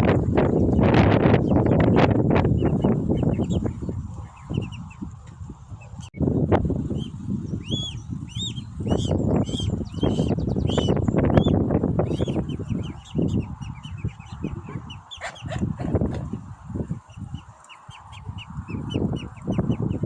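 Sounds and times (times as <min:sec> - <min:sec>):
cygnets peeping: 0:00.0 - 0:20.0.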